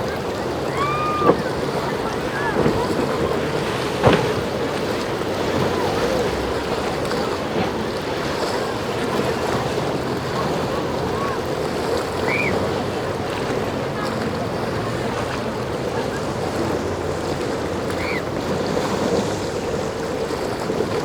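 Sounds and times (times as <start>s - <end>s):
distant shouts: 0.0s - 6.9s, 9.4s - 16.3s, 17.8s - 18.3s
boats running through surf: 0.0s - 21.0s.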